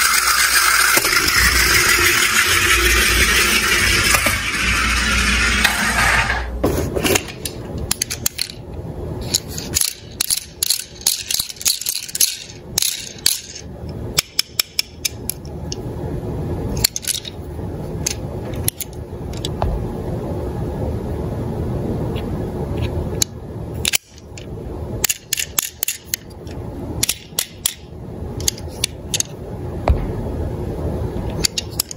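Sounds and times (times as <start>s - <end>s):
toy cars clattering: 0.0s - 8.6s, 9.2s - 13.6s, 16.8s - 17.4s, 23.8s - 27.8s
steady low noise: 0.0s - 31.9s.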